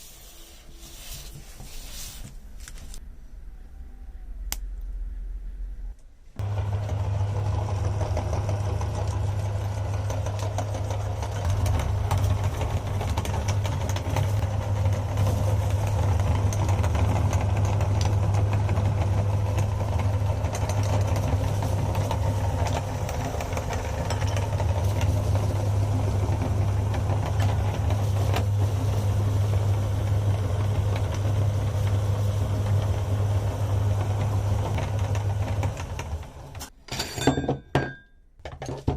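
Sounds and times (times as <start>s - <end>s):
meat grinder motor humming: 6.4s - 36.7s.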